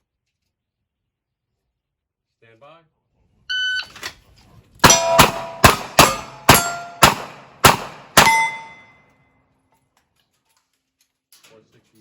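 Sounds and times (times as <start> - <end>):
metallic ring of steel plates: 4.8 - 7.0, 8.2 - 9.0.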